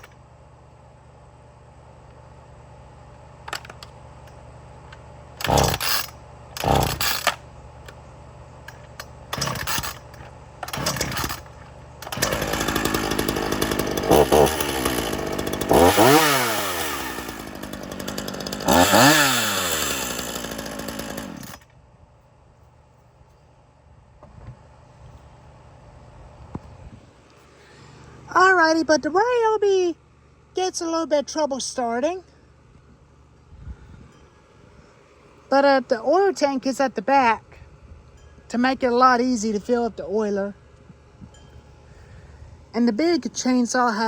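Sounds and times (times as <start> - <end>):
chainsaw idling and revving: 5.4 - 8.0, 8.6 - 21.7.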